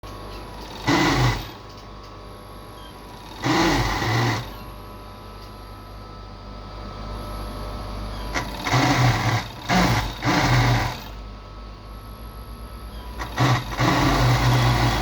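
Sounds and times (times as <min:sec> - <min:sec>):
steady machine hum: 0:00.0 - 0:15.0
sewing machinery bursts: 0:00.6 - 0:01.7, 0:03.1 - 0:04.6, 0:08.3 - 0:11.2, 0:13.0 - 0:15.0.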